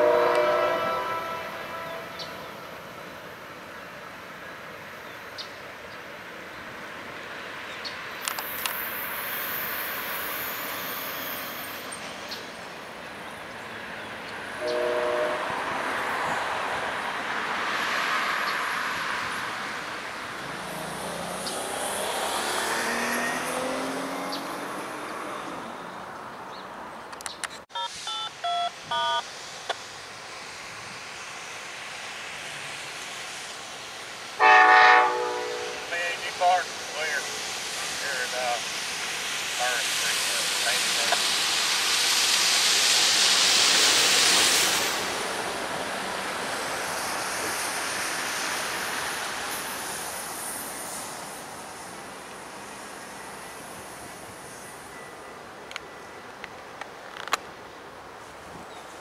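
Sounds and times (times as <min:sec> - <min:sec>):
loud train horn blast: 0:00.0 - 0:02.6, 0:14.6 - 0:15.7, 0:34.4 - 0:36.3
train horn toots: 0:00.0 - 0:02.6, 0:14.6 - 0:15.7, 0:34.4 - 0:35.9
train rumbling: 0:00.0 - 0:27.2, 0:27.9 - 0:59.0
street traffic: 0:00.0 - 0:59.0.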